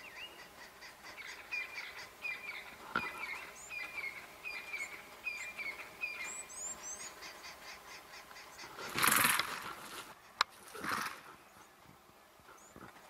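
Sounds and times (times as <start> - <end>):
high rising bird chirps: 0.0 - 8.7.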